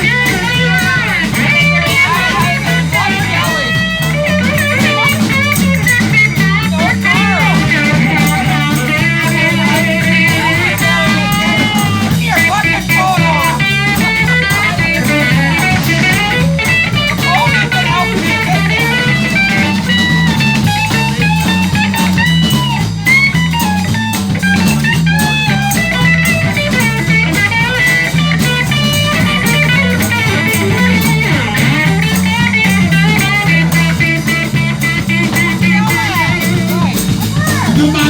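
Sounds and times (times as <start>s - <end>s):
drums: 0.0s - 38.0s
lead guitar solo: 0.0s - 38.0s
walking bass line: 0.0s - 38.0s.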